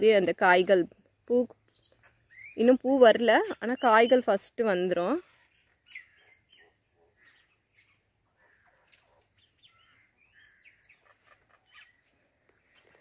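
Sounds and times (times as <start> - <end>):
faint bird chirps: 1.6 - 2.8, 5.2 - 13.0.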